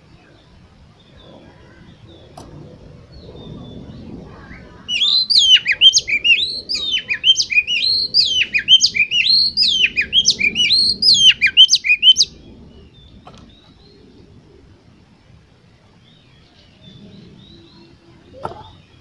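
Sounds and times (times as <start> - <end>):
songbird whistles and trills: 3.2 - 14.1.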